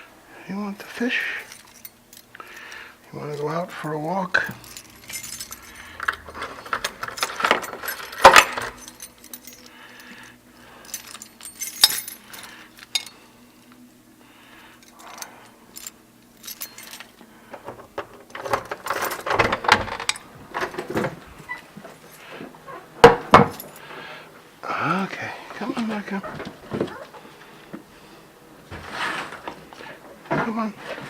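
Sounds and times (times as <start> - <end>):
small metal objects jingling: 0.9 - 13.2, 14.8 - 17.2, 18.8 - 20.2.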